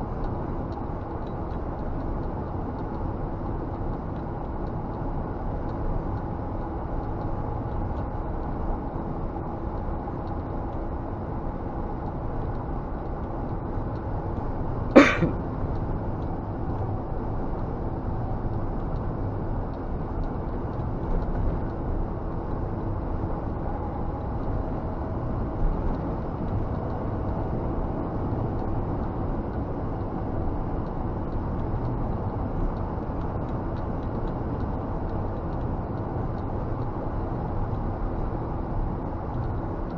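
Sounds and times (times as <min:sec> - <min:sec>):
road noise: 0:00.0 - 0:39.9.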